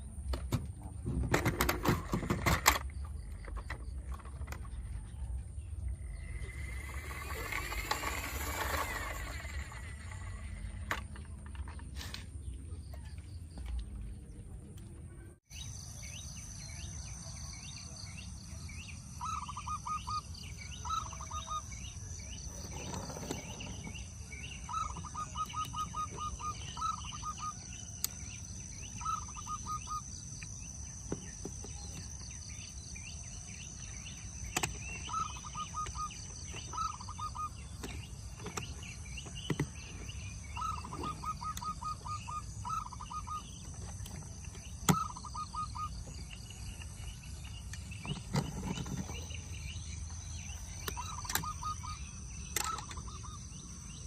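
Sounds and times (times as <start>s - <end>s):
bird calling in rapid pips: 19.2s - 21.8s, 24.6s - 28.0s, 29.0s - 30.2s, 34.6s - 38.6s, 40.5s - 44.2s, 44.8s - 46.4s, 50.8s - 53.5s.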